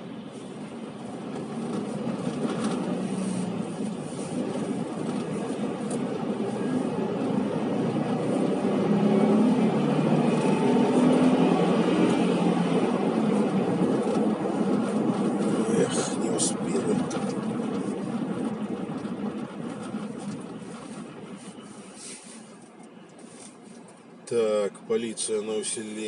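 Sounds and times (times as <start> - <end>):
large vehicle engine: 0.0 - 26.0
road noise: 0.0 - 26.0.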